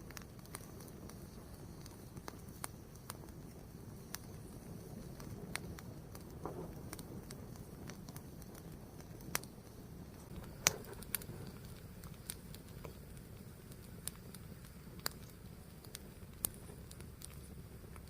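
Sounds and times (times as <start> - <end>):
fire crackling and popping: 0.0 - 18.0
low steady rumble: 0.0 - 18.0.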